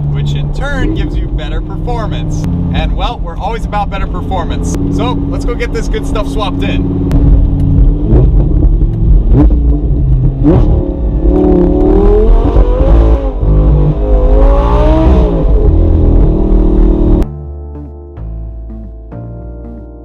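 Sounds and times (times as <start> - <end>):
car engine revving: 0.0 - 17.3
music: 17.2 - 20.0.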